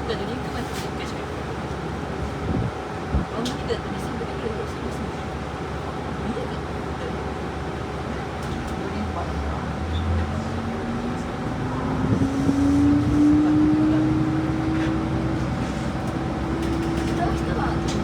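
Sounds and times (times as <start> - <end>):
railcar diesel engine running: 0.0 - 18.0
low rumble: 10.2 - 14.7.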